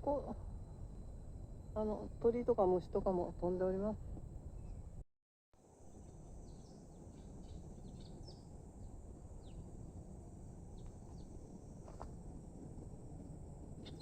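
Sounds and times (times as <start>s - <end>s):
low background rumble: 0.0s - 5.0s, 5.7s - 14.0s
birds chirping: 6.4s - 9.6s.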